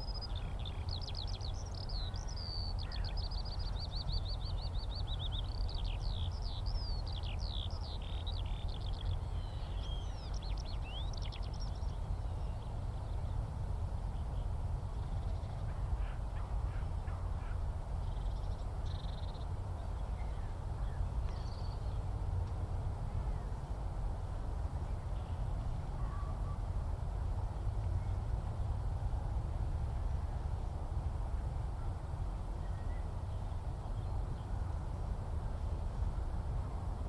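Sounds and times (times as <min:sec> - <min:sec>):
skylark singing: 0:00.0 - 0:12.6.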